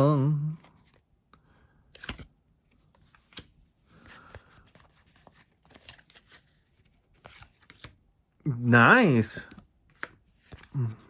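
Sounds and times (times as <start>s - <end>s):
trading cards rustling and clicking: 1.9s - 8.0s, 9.4s - 11.0s.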